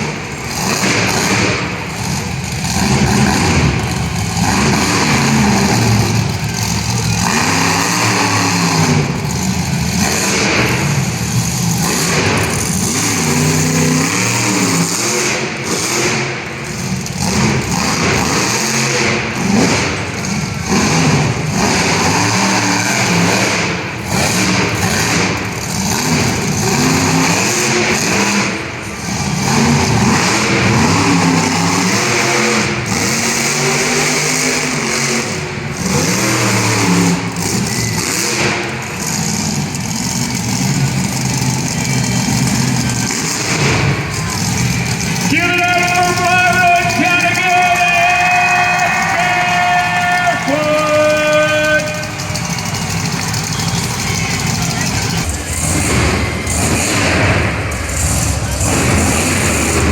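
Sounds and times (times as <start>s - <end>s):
monster truck engine revving: 0.0s - 59.9s.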